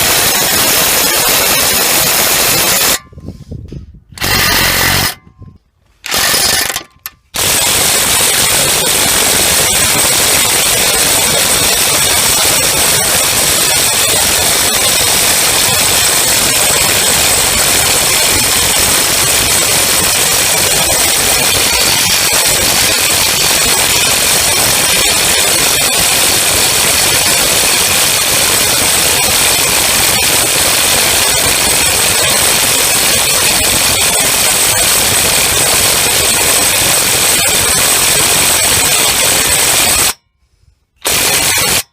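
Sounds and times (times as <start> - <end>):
impact wrench hammering: 4.2 - 5.4, 6.0 - 31.0, 41.0 - 41.9.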